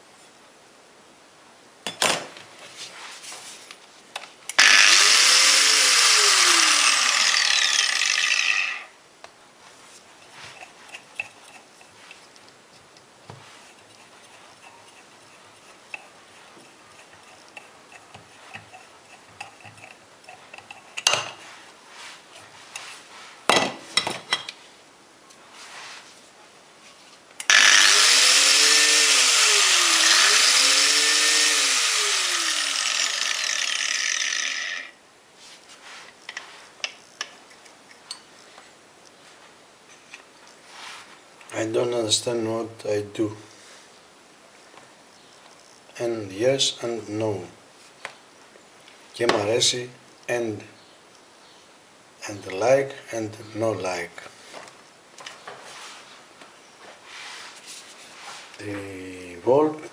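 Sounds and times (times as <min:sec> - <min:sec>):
angle grinder whining: 0:04.6 - 0:08.9, 0:27.4 - 0:35.0.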